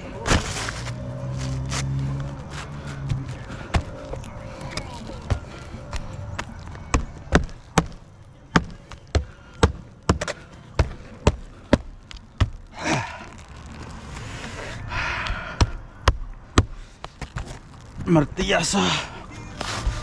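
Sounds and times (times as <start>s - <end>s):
scraping and rustling: 0.2s - 4.2s, 19.5s - 20.0s.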